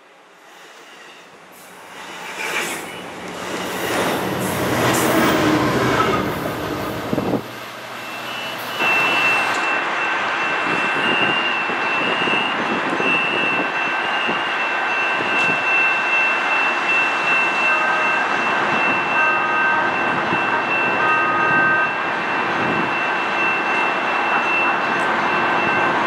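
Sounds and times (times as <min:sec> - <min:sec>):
steel wheels squealing: 0:00.8 - 0:07.3, 0:07.9 - 0:17.6.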